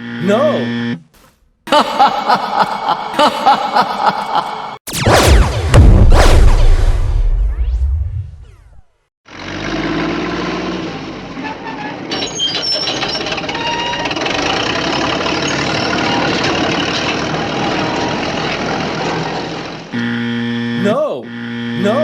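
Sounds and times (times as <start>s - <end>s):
heavy vehicle engine running: 9.3s - 21.8s.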